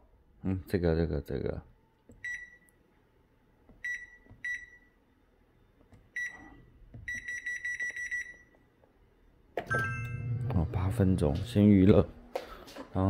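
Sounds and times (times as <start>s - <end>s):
appliance electronic beeps: 2.2s - 2.7s, 3.8s - 5.0s, 6.1s - 8.6s, 9.7s - 10.6s.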